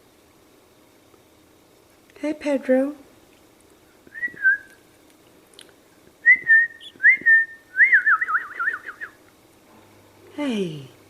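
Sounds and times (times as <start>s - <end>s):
person whistling: 4.1s - 4.8s, 6.2s - 9.2s.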